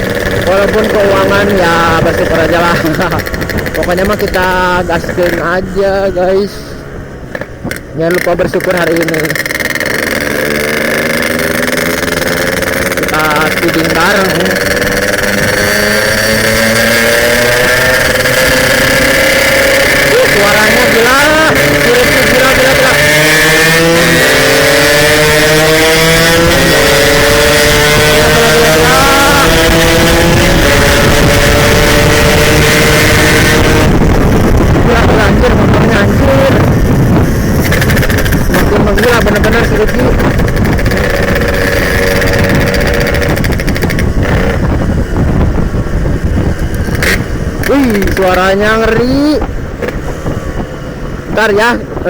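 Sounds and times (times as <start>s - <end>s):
two-stroke motorcycle accelerating: 0.0s - 52.0s.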